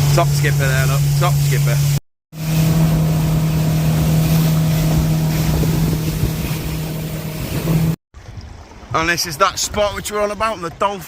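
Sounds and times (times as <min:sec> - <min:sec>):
motorboat engine humming: 0:00.0 - 0:08.9
water rushing: 0:00.0 - 0:11.0
wind buffeting microphone: 0:02.4 - 0:10.8.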